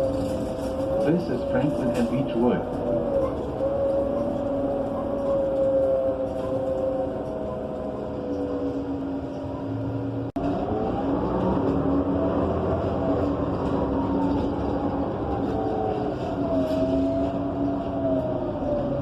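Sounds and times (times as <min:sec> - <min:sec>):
bus engine whine: 0:00.0 - 0:19.0
road rumble: 0:00.0 - 0:19.0.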